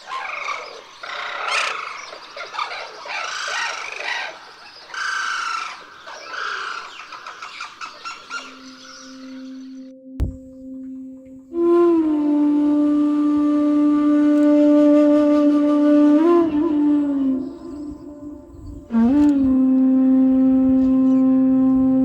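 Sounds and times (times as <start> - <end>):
cranes calling: 0.0 - 9.9
low musical tone: 8.1 - 22.0.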